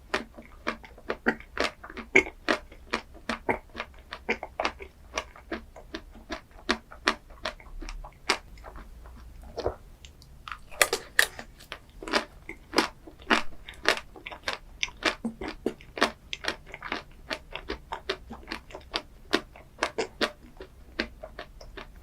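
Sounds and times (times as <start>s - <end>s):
chewing and crunching dessert: 0.0s - 22.0s.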